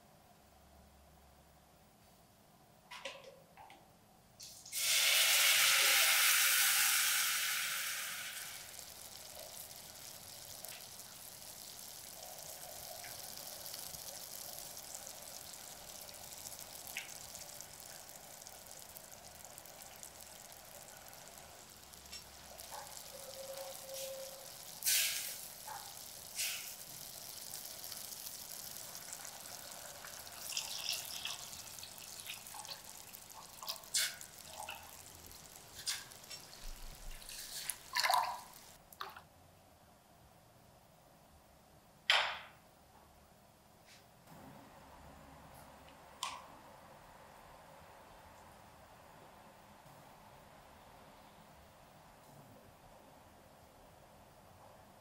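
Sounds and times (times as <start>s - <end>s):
paste sizzling in hot oil: 4.4s - 38.8s
water pouring: 4.4s - 39.2s
utensils clicking on pot: 4.8s - 39.2s.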